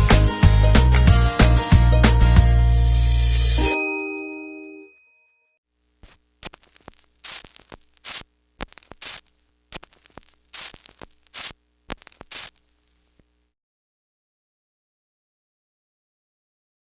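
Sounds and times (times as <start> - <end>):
faint steady hum: 5.7 - 13.6
crackling static bursts: 5.8 - 13.6.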